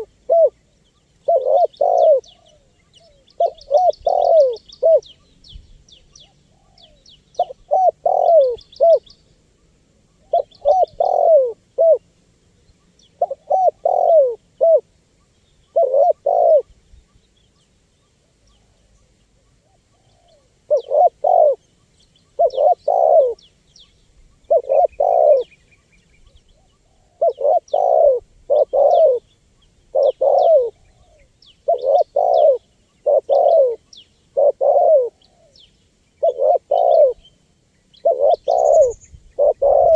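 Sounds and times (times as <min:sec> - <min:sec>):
dove cooing: 0:00.0 - 0:05.2, 0:06.1 - 0:09.1, 0:10.1 - 0:12.1, 0:13.2 - 0:14.9, 0:15.7 - 0:16.8, 0:19.6 - 0:21.6, 0:22.3 - 0:23.5, 0:24.4 - 0:25.6, 0:26.4 - 0:35.6, 0:36.2 - 0:37.3, 0:38.0 - 0:39.9
small birds chirping: 0:00.0 - 0:39.9.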